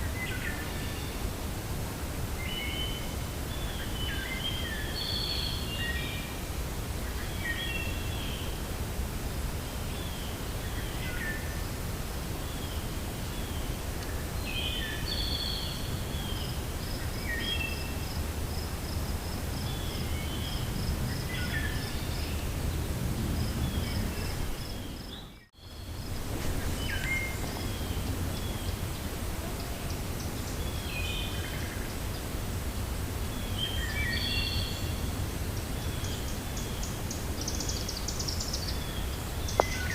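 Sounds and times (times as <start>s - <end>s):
wind blowing with low rumble: 0.0s - 39.9s
birds chirping: 19.6s - 32.4s, 35.6s - 39.9s.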